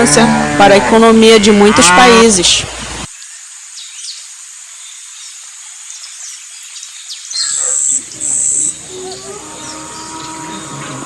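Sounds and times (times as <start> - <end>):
high chirping animal calls: 7.3 - 11.0.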